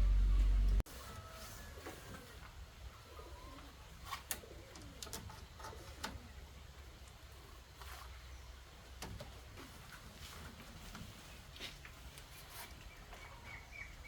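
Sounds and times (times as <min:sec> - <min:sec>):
dove cooing softly: 0:01.1 - 0:06.4.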